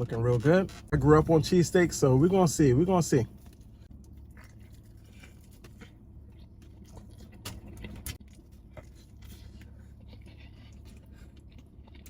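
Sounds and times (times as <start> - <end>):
steady low hum: 0.0 - 12.0
person chewing food: 3.3 - 12.0.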